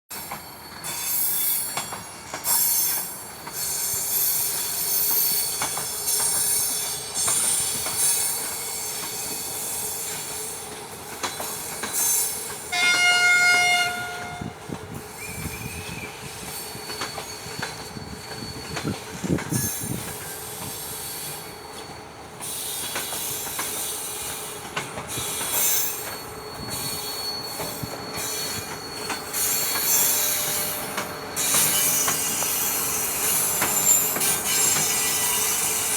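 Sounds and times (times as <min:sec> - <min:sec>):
train wheels squealing on rails: 0:00.1 - 0:35.9
locomotive horn blast: 0:12.7 - 0:14.6.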